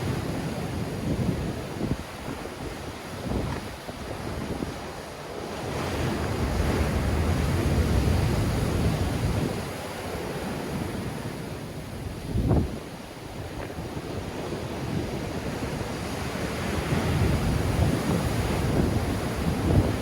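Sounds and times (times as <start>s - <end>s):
sea waves crashing: 0.0s - 20.0s
wind buffeting microphone: 0.0s - 20.0s.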